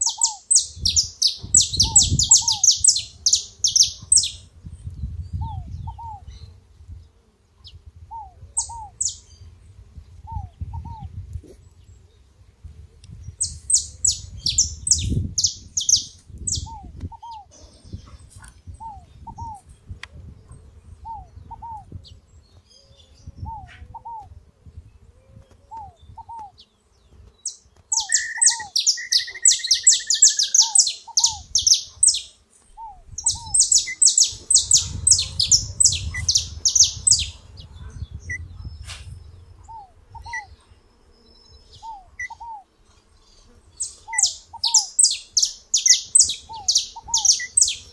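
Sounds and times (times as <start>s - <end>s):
finch rapid high chirps: 28.0s - 31.4s.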